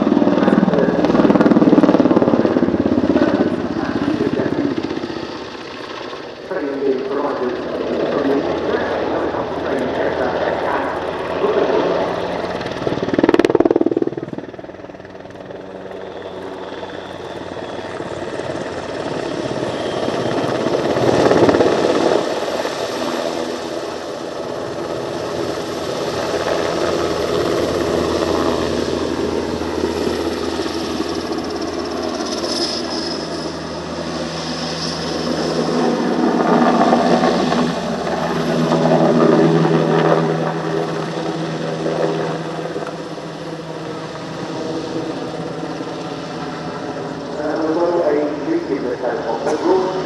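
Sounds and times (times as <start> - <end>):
helicopter rotor and engines: 0.0 - 50.0.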